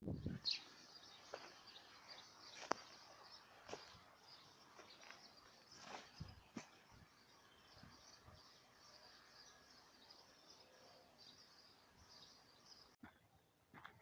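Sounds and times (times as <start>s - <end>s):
bird chirps: 0.1s - 13.0s.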